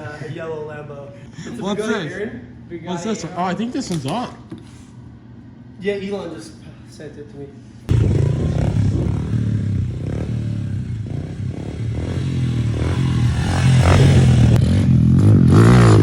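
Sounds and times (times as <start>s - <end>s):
pit bike engines revving: 7.9s - 16.0s.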